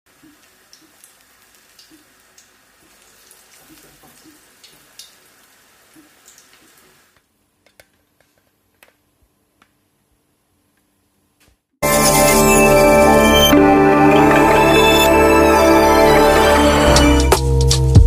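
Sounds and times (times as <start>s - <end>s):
food deep-frying in hot oil: 0.1s - 7.2s.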